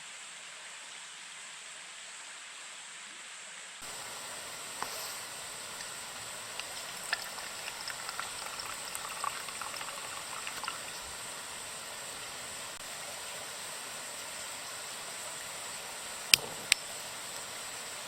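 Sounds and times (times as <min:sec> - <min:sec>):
water drips: 0:03.8 - 0:12.8
water flowing and splashing: 0:03.8 - 0:18.0.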